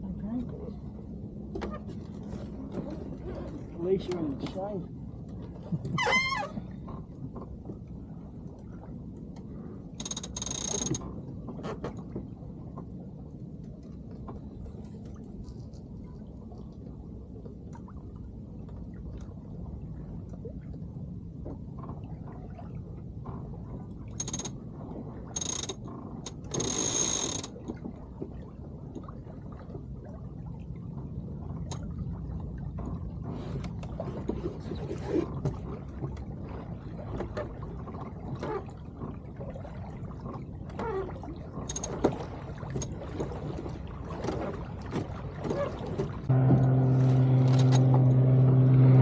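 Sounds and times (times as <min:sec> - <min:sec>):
steady low rumble: 0:00.0 - 0:05.8, 0:46.1 - 0:49.0
water lapping along hull: 0:00.0 - 0:49.0.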